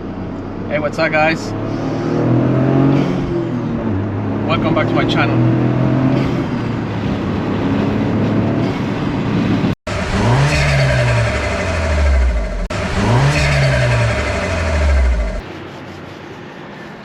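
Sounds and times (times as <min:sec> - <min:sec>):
car engine running and revving: 0:01.4 - 0:15.5.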